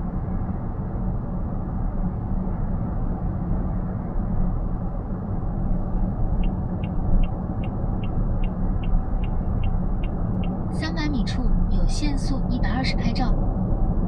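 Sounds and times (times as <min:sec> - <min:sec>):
car road and engine noise: 0:00.0 - 0:14.0
turn signal ticking: 0:06.4 - 0:11.1.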